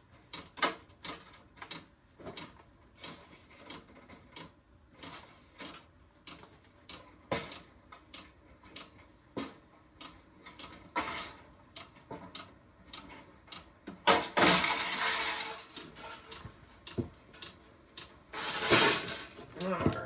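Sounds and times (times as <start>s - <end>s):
metal parts clattering: 14.3s - 16.3s, 18.4s - 19.4s
metal scraping: 18.4s - 19.4s.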